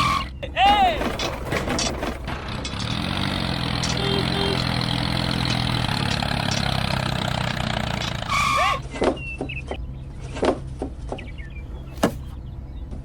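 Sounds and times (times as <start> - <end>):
engine idling: 0.0 - 8.8.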